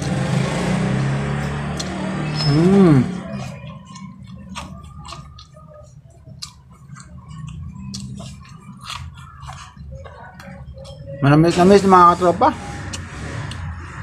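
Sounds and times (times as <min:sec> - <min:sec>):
person chewing corn: 0:00.9 - 0:11.1, 0:12.8 - 0:14.0.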